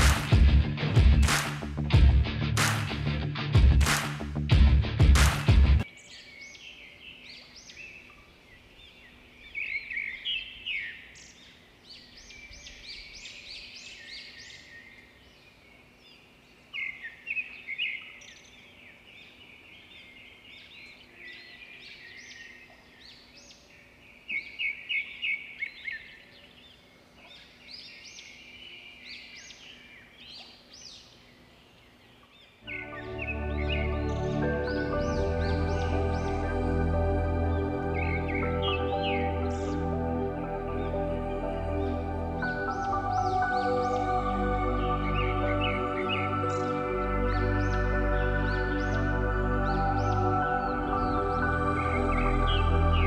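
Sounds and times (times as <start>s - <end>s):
birds chirping and twittering: 5.8s - 53.0s.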